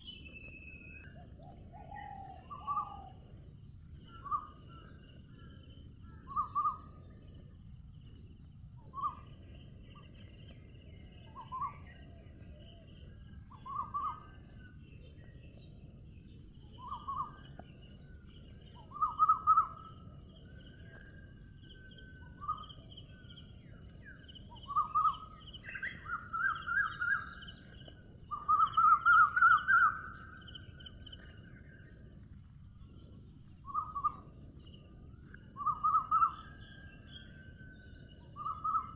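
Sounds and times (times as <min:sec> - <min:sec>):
insect drone: 0:00.0 - 0:38.9
bird calling: 0:24.6 - 0:30.6, 0:35.6 - 0:36.7.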